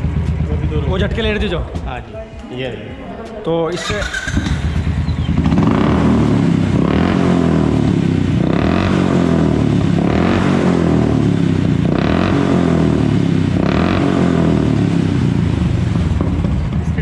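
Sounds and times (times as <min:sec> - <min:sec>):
motorcycle engine running: 0:00.0 - 0:02.1, 0:03.8 - 0:17.0.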